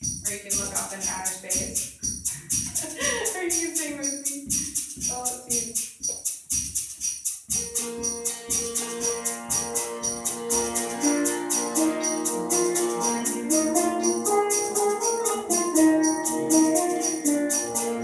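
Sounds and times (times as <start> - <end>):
percussion beat: 0.0 - 18.0
sustained sitar notes: 7.6 - 18.0.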